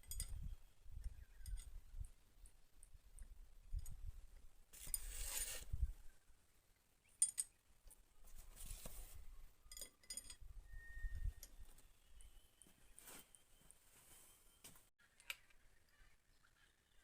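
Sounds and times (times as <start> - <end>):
metal tools clinking and rattling: 0.0 - 0.5, 9.7 - 10.5.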